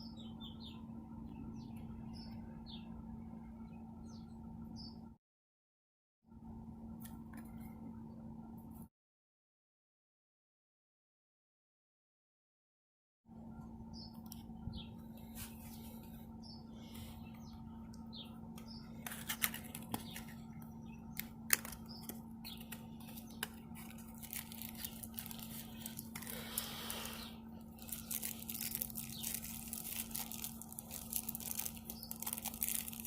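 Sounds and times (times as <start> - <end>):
bird chirps: 0.0 - 5.1, 31.4 - 33.0
low electrical hum: 0.0 - 5.2, 6.3 - 8.9, 13.3 - 33.0
crinkly handling noises: 14.3 - 33.0.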